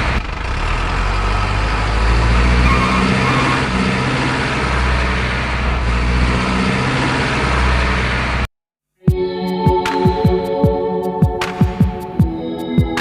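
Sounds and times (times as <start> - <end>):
diesel engine droning: 0.0 - 8.4.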